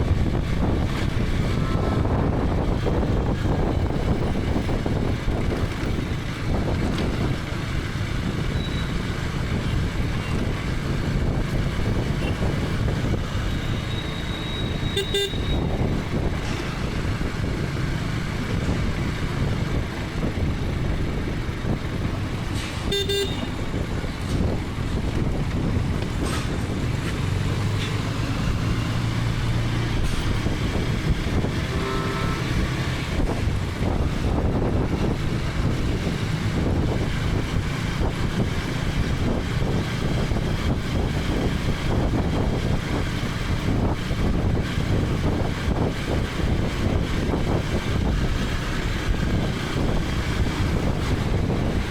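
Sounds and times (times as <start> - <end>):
motorcycle engine running: 0.0 - 29.4
road and wind noise: 0.0 - 51.9
vehicle horn toots: 1.4 - 2.4, 13.8 - 16.0, 22.8 - 23.8, 31.5 - 32.9.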